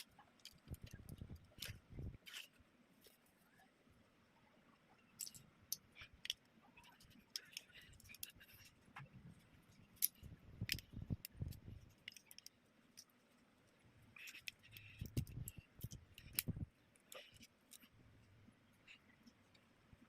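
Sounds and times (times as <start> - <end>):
plastic toy pieces clicking: 0.0 - 2.5, 5.2 - 8.8, 9.8 - 13.2, 14.1 - 17.9.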